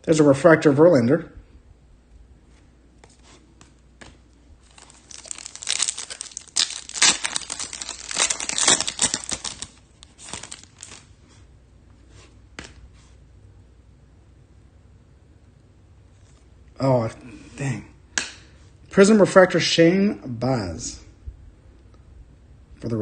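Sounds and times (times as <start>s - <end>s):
wrapper crinkling and crackling: 4.6s - 11.1s
wrapper rustling: 4.6s - 11.2s
card pack wrapper tearing: 4.7s - 11.1s.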